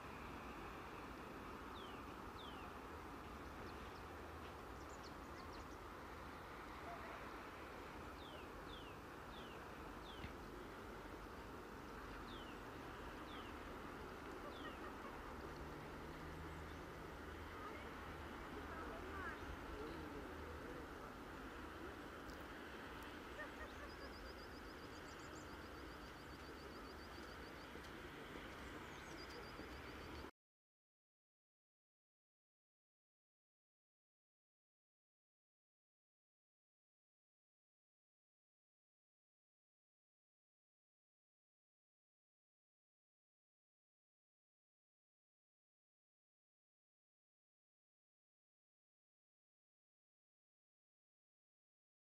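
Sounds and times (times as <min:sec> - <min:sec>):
outdoor murmuring haze: 0:00.0 - 0:30.3
faint click: 0:22.2 - 0:23.1, 0:26.0 - 0:30.3
bird chirping: 0:28.5 - 0:30.3.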